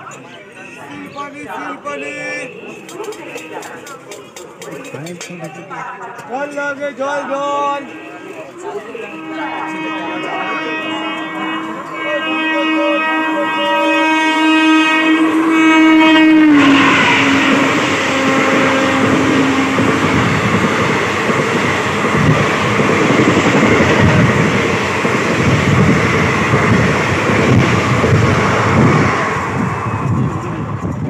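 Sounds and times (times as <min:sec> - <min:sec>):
train carriages rumbling: 0:07.4 - 0:31.0
train horn blast: 0:07.8 - 0:30.2.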